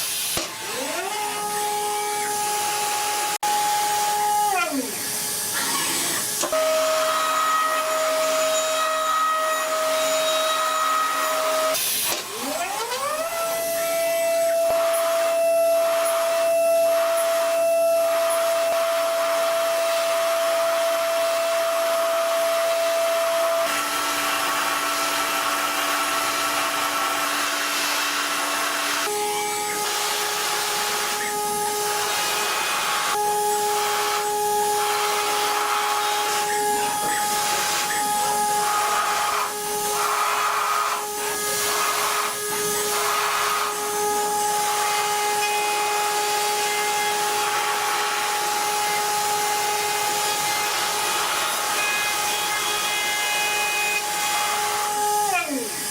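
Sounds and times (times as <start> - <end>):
metal lathe whine: 0.0 - 55.9
cutting hiss: 22.8 - 55.9.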